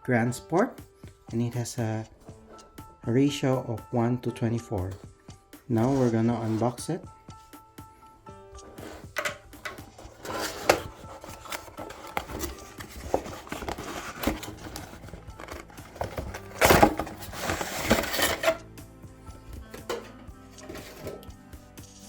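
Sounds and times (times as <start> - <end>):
faint background music: 0.0 - 22.0
packaging clicks and rustles: 8.8 - 18.6.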